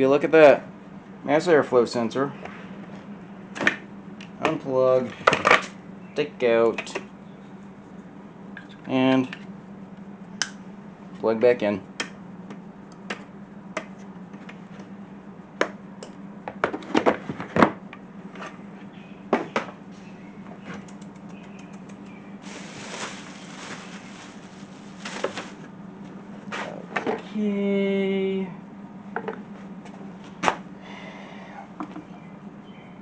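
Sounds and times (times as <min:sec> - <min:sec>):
steady low hum: 0:00.0 - 0:33.0
rustling hiss: 0:22.4 - 0:25.6.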